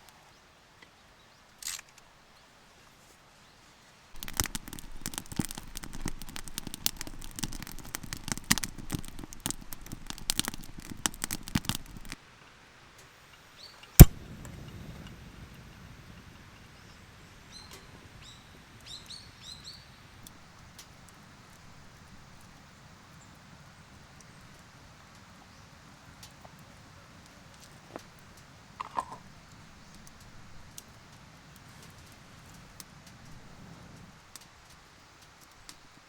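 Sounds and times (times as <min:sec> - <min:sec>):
wood fire crackling and popping: 0:04.2 - 0:12.2, 0:14.0 - 0:16.3, 0:17.6 - 0:36.0
sharp click: 0:14.0 - 0:14.2.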